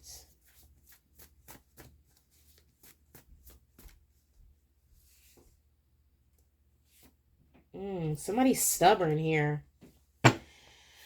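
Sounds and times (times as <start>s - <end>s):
cards being shuffled: 0.4s - 4.1s.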